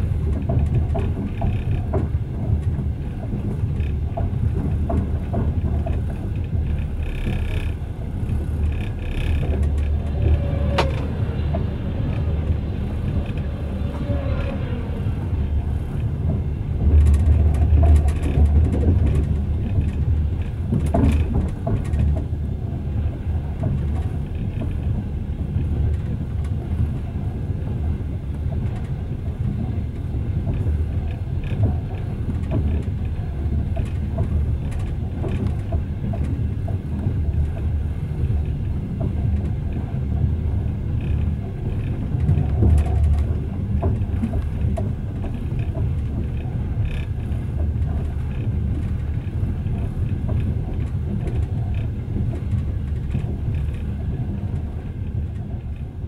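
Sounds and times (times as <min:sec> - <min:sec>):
train wheels rumbling on rails: 0:00.0 - 0:56.0
light clicks and rattles: 0:00.2 - 0:13.5, 0:15.9 - 0:22.4, 0:28.3 - 0:56.0.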